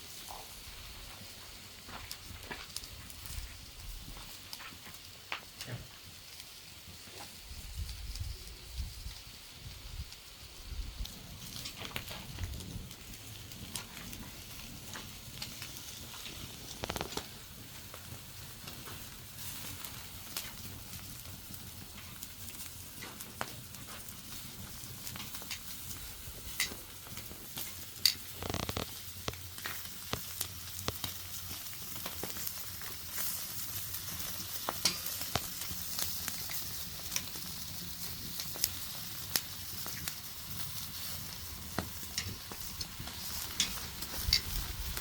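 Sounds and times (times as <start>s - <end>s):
food sizzling in a pan: 23.9s - 45.0s.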